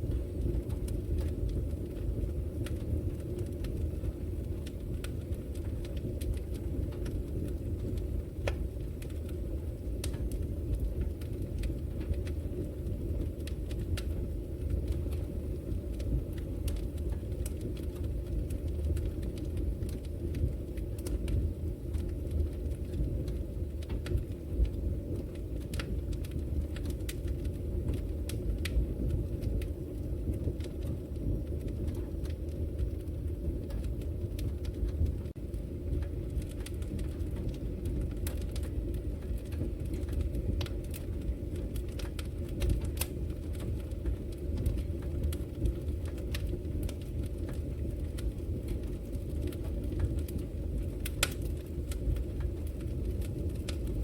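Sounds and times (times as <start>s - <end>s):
burning wood crackling and popping: 0.0s - 54.0s
fire rumbling: 0.0s - 54.0s.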